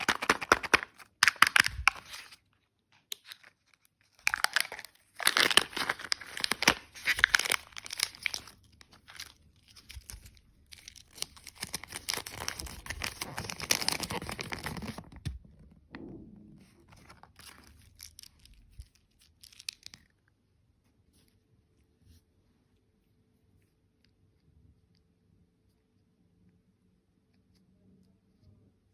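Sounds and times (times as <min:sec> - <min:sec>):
plastic packaging crackling: 0:00.0 - 0:02.4, 0:03.0 - 0:15.7.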